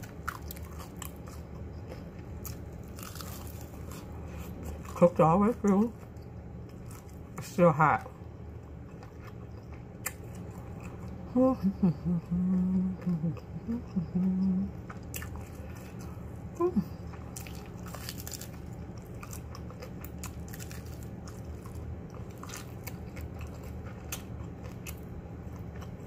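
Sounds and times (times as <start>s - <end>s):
closed-mouth hum: 0.0s - 17.9s
chewing crispy fried chicken: 0.0s - 26.0s.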